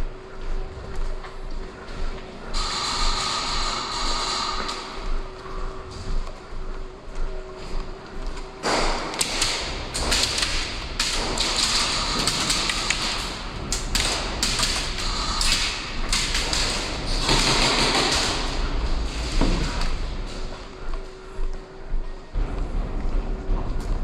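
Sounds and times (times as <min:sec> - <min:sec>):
airsoft guns firing in bursts: 0:08.6 - 0:19.9.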